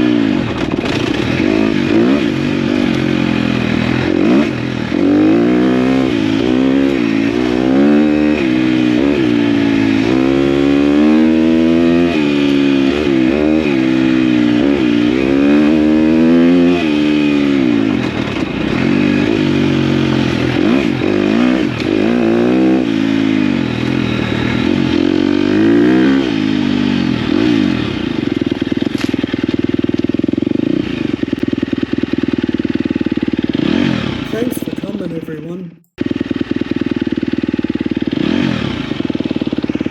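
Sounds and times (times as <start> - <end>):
dirt bike engine revving: 0.0 - 28.0, 30.6 - 35.3, 36.1 - 39.9.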